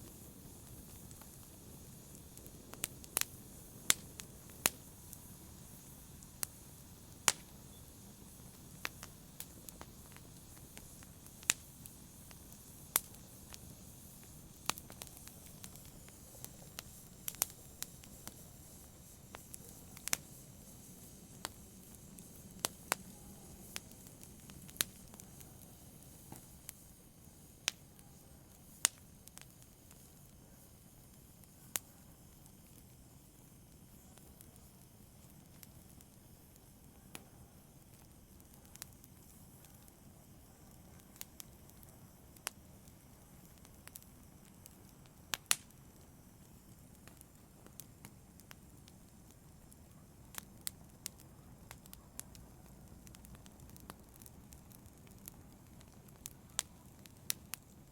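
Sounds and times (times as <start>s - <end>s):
fire crackling and popping: 0.0s - 57.9s
low steady fire hiss: 0.0s - 57.9s.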